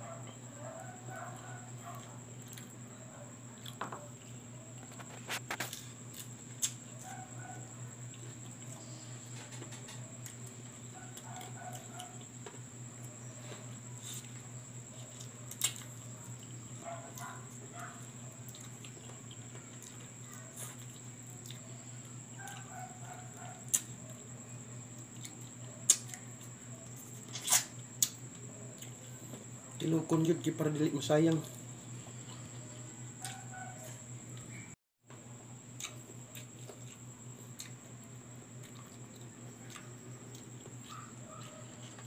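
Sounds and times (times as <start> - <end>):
steady low hum: 0.0 - 42.0
person chewing and lip-smacking: 15.0 - 17.3, 18.4 - 21.7, 23.7 - 23.9, 25.0 - 26.5, 35.8 - 38.0, 38.6 - 42.0.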